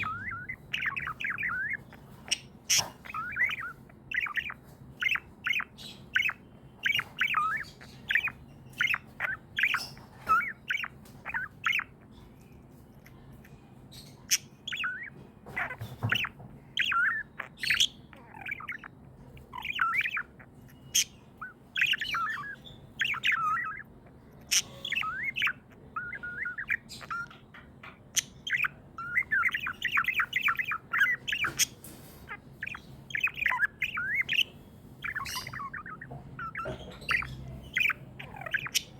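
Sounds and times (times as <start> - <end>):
budgies chirping and chattering: 0.0 - 38.9.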